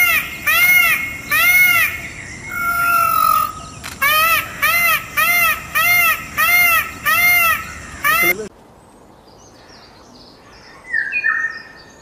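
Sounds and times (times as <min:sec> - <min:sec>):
peacock calling: 0:00.0 - 0:08.5.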